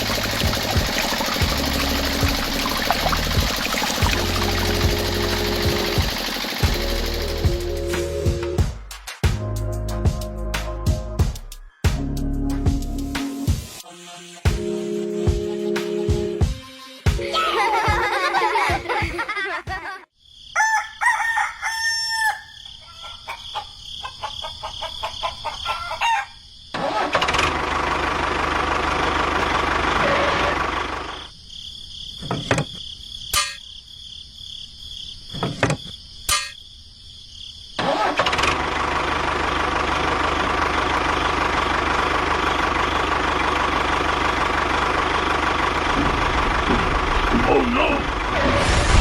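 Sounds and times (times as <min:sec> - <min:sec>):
small engine running: 0:00.0 - 0:08.3, 0:26.8 - 0:31.3, 0:37.8 - 0:48.4
rooster crowing: 0:20.5 - 0:26.5.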